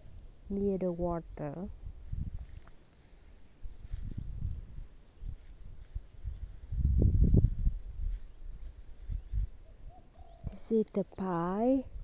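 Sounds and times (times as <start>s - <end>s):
insect chirring: 0.0s - 12.0s
low rumbles on microphone: 4.0s - 9.6s.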